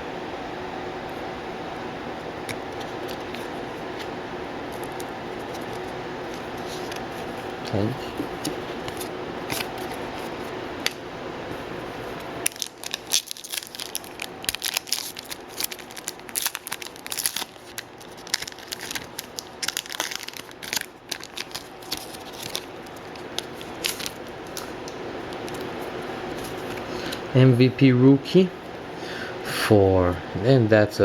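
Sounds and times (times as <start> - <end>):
foil wrapper tearing and crinkling: 12.4 - 26.8.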